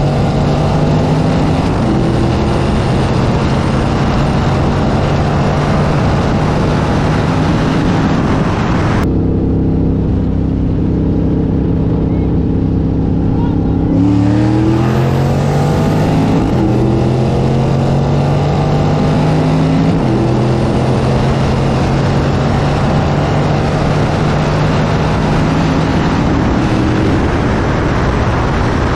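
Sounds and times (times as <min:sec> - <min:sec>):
racing car engines: 0:00.0 - 0:28.9
wind and road rush: 0:00.0 - 0:28.9.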